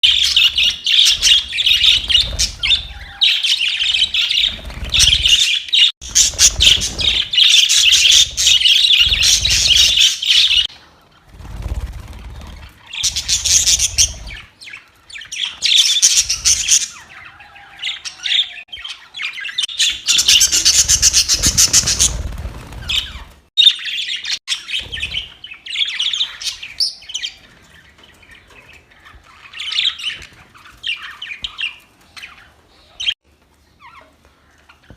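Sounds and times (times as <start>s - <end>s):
budgerigars chattering and chirping: 0.0s - 10.8s, 12.2s - 33.2s.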